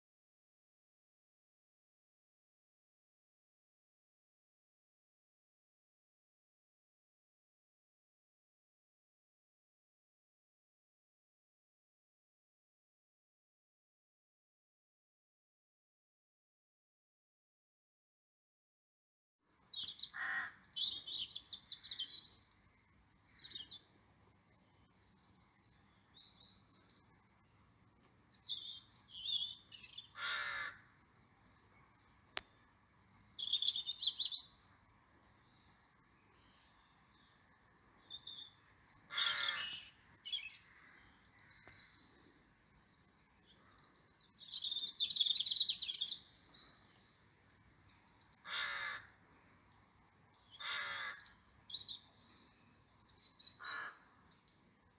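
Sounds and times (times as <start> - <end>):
birds chirping: 19.4 - 54.9
loud bird call: 20.0 - 22.2, 30.0 - 30.9, 38.9 - 41.8, 48.4 - 49.2, 50.5 - 51.6, 53.6 - 54.1.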